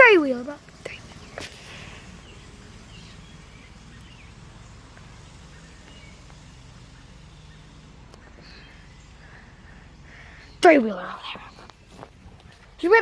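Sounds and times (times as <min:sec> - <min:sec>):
outdoor background noise: 0:00.0 - 0:13.0
small engine humming: 0:00.6 - 0:10.6.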